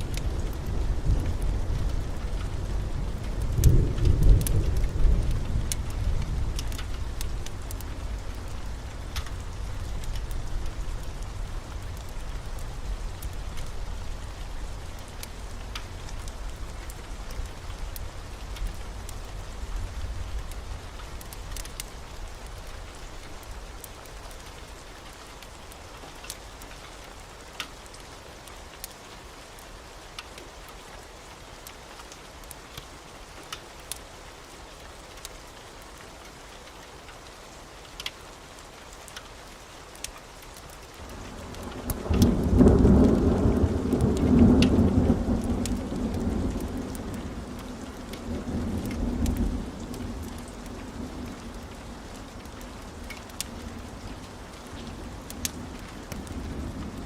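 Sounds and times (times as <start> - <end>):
thunder rumbling: 0.0 - 21.6, 41.0 - 57.0
heavy rain: 0.0 - 57.0
wood fire crackling: 0.0 - 57.0.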